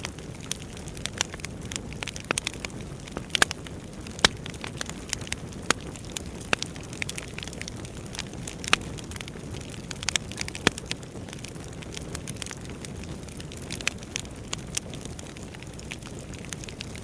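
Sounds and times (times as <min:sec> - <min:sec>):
burning logs crackling and popping: 0:00.0 - 0:17.0
low rush of flames: 0:00.0 - 0:17.0.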